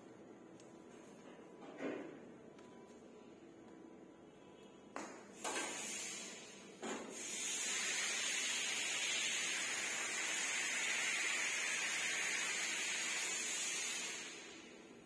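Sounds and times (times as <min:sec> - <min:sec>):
compressed air hissing: 0:05.4 - 0:14.8.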